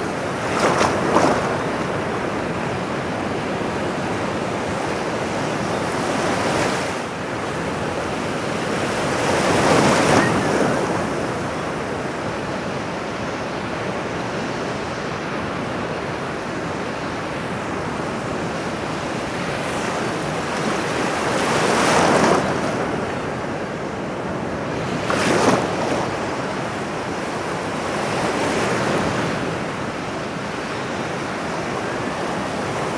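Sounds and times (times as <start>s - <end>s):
ocean surf: 0.0s - 13.8s.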